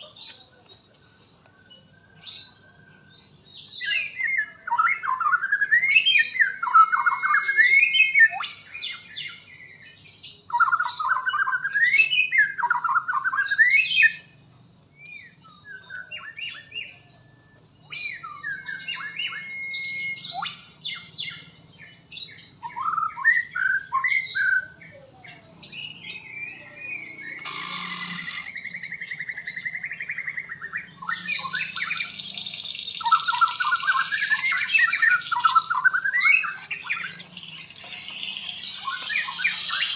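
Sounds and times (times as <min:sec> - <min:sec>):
bird chirps: 0:00.0 - 0:39.9
bird singing whistled phrases: 0:01.6 - 0:39.9
harsh buzzy bird rattling: 0:27.2 - 0:28.6.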